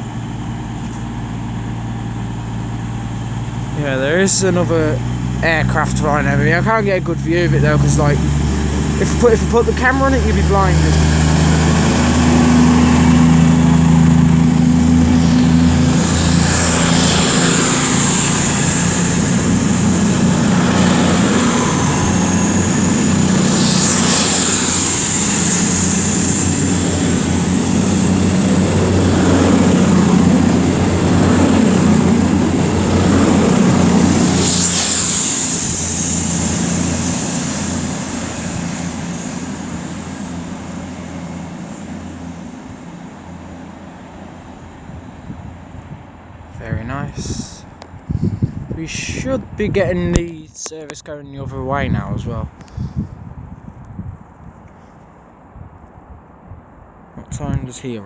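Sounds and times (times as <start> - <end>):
diesel train engines: 0.0 - 58.0
jet aircraft whine: 0.0 - 58.0.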